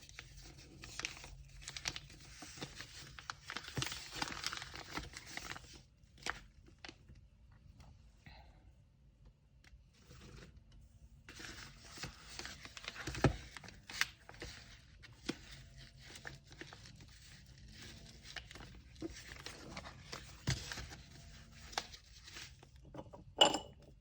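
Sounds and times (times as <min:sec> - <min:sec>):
paper crinkling and rustling: 0:00.0 - 0:07.2, 0:11.3 - 0:22.8.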